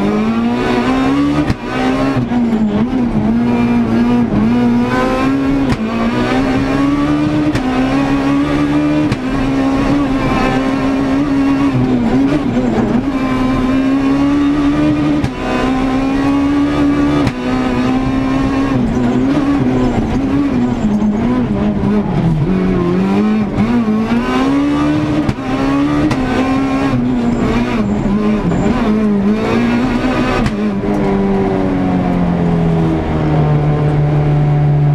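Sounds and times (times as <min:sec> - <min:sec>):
rally car engine revving: 0:00.0 - 0:34.9.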